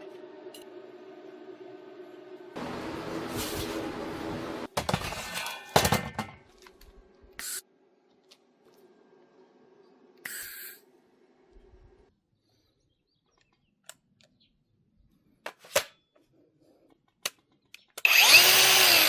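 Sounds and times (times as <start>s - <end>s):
power tool running: 2.6s - 4.9s, 18.0s - 19.0s
metal clanks and knocks: 4.7s - 6.7s.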